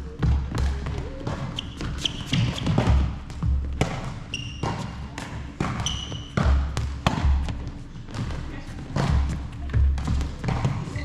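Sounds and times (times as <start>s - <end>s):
heavy footsteps on court: 0.0s - 11.0s
shoes squeaking on court floor: 0.0s - 11.0s.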